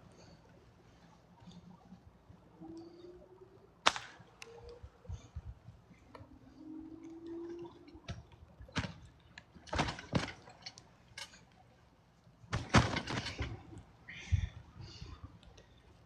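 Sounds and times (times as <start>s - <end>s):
trampoline thumps: 8.0s - 10.6s, 12.5s - 13.7s.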